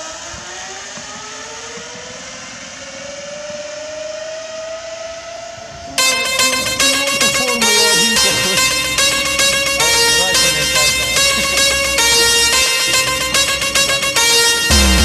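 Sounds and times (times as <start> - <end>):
music with a beat: 6.0 - 15.0.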